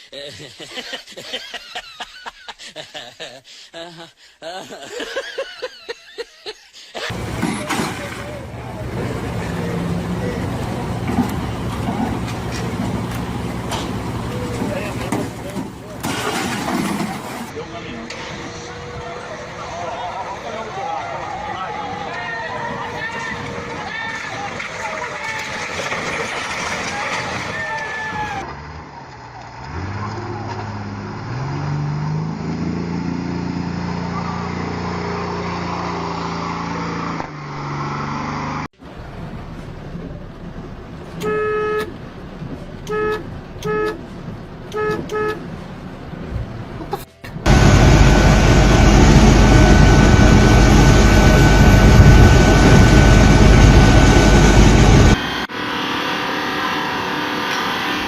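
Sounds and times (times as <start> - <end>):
vehicle engine hum: 7.0 - 58.0
vehicle engine revving: 28.4 - 38.7, 47.4 - 58.0
broad rushing noise: 47.4 - 58.0.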